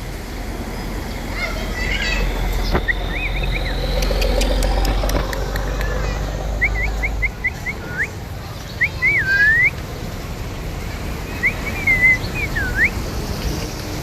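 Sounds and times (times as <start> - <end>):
parrot whistling: 1.5 - 5.8, 6.5 - 8.2, 8.8 - 9.8, 11.3 - 13.0.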